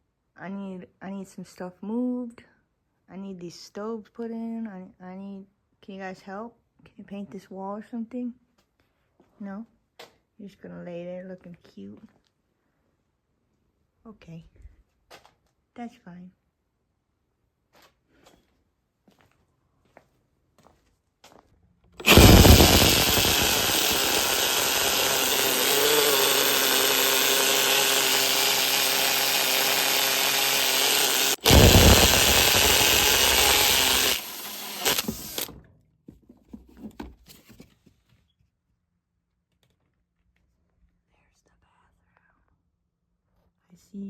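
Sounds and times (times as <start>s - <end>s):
toilet pump motor whining: 22.0s - 35.5s.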